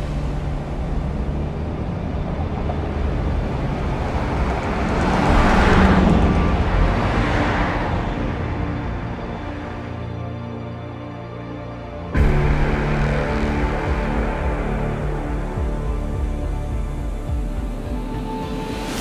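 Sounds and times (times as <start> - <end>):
car passing by: 0.0 - 10.3.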